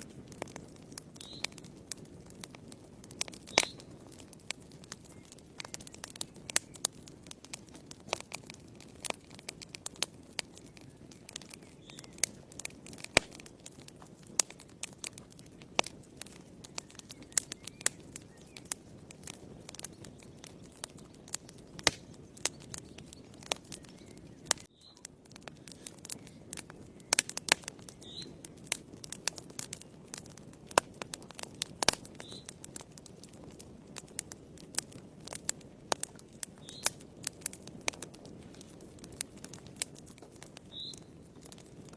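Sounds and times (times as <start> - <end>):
low rush of flame: 0.0 - 41.9
wood fire crackling: 0.0 - 41.9.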